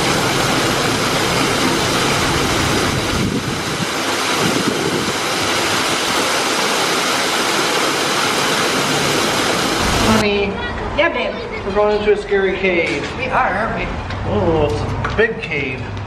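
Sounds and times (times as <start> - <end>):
artificial waterfall rushing: 0.0 - 10.4.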